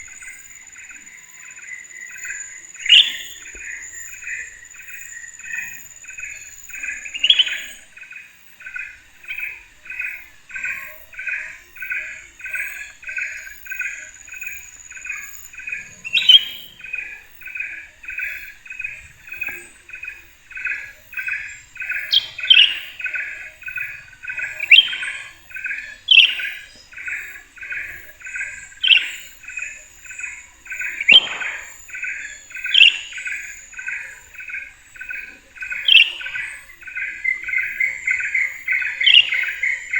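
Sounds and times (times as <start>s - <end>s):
high insect whine: 0.0s - 39.9s
rising bird chirp: 13.7s - 29.2s, 30.7s - 34.8s, 35.6s - 39.9s.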